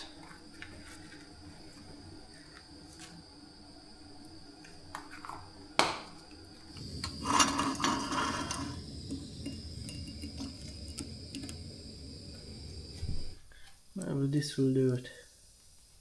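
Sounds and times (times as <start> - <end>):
low steady rumble: 6.8 - 13.4.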